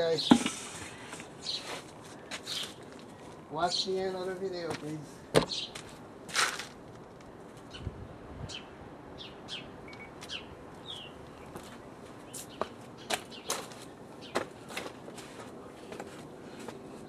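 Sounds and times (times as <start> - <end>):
small birds chirping: 0.0 - 4.4, 5.5 - 5.9, 8.5 - 14.6.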